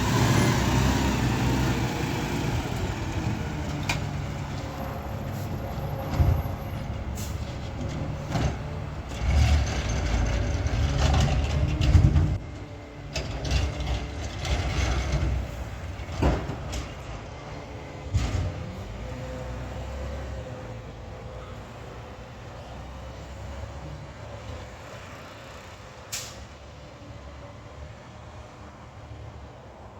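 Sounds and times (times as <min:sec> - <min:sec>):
truck equipment knocking and clanking: 0:00.0 - 0:17.3, 0:17.9 - 0:19.1
garbage truck engine running: 0:00.0 - 0:19.9.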